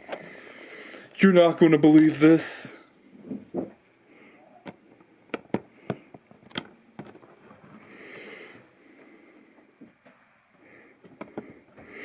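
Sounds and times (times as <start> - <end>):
soft breath: 0.0 - 1.2, 4.0 - 4.6, 7.6 - 12.0.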